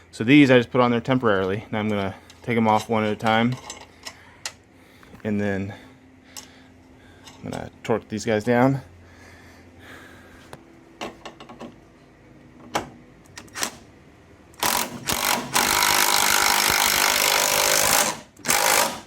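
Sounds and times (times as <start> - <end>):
power tool spinning off bolt: 14.6 - 19.0.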